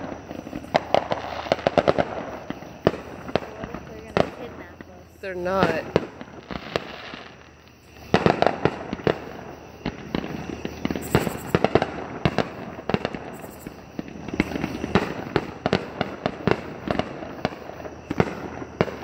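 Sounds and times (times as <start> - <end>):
fireworks bursts and crackles: 0.0 - 19.0.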